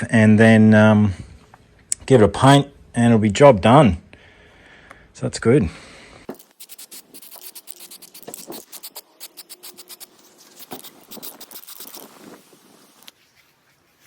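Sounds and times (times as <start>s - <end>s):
scratching strokes on steel: 6.4s - 14.0s.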